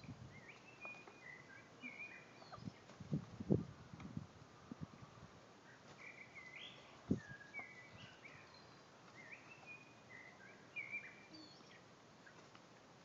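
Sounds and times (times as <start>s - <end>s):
faint bird chirps and whistles: 0.0s - 2.8s, 5.7s - 11.8s.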